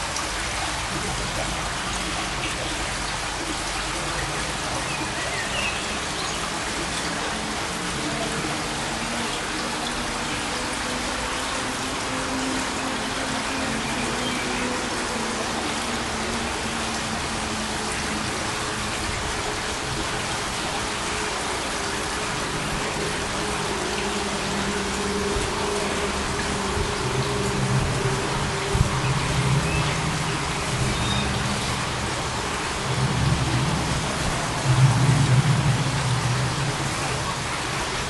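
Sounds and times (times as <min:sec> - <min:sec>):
faint low drone: 0:00.0 - 0:38.0
steady rushing noise: 0:05.8 - 0:38.0.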